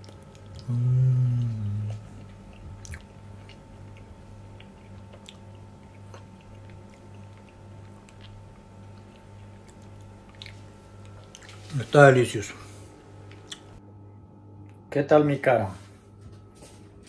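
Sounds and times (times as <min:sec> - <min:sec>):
man chewing with wet clicks: 0:00.0 - 0:11.7, 0:13.2 - 0:13.8
man humming mmm: 0:00.6 - 0:02.5.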